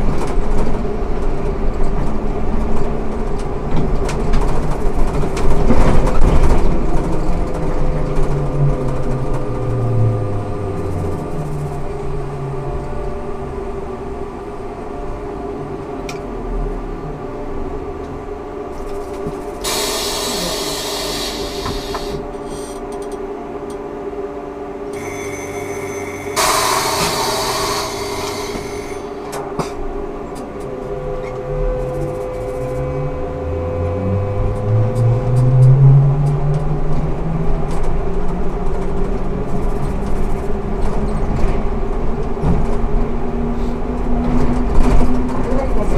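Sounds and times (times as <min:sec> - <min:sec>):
trolleybus electrical hum: 0:00.0 - 0:45.9
air hiss bursts: 0:19.6 - 0:22.7, 0:25.0 - 0:29.2.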